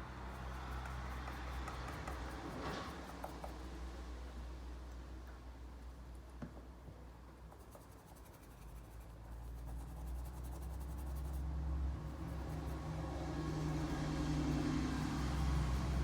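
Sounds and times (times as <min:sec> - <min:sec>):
scratchy rubbing on key fob: 0:07.6 - 0:11.4, 0:12.0 - 0:16.0.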